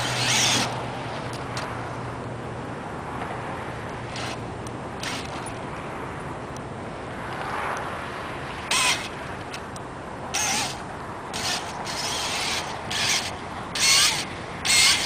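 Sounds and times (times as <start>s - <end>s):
toy truck motor whirring: 0.0s - 1.7s, 4.1s - 4.4s, 5.0s - 5.6s, 8.7s - 9.6s, 10.4s - 15.0s.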